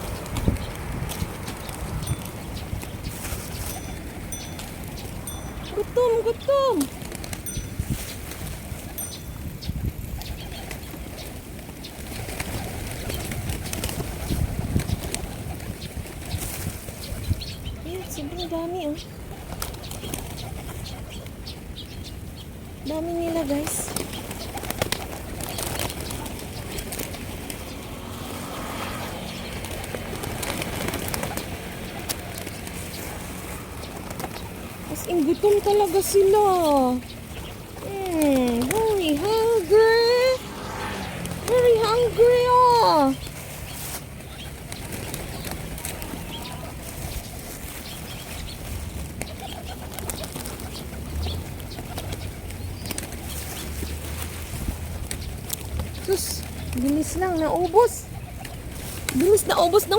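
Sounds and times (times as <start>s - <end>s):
wing flutters and clicks: 10.1s - 17.7s, 19.1s - 22.0s, 23.4s - 42.2s, 43.1s - 59.9s
bird calls: 14.2s - 54.1s.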